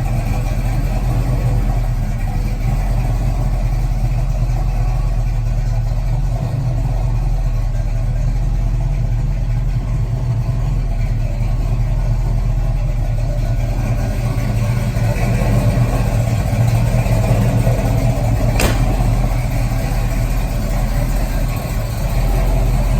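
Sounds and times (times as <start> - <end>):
car engine droning: 0.0 - 22.9
sharp click: 18.6 - 19.2.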